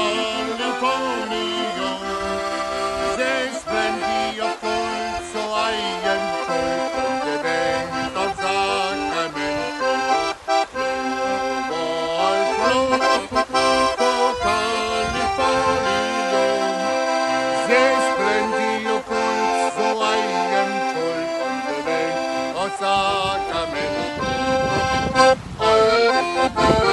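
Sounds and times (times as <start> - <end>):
accordion playing: 0.0 - 26.9.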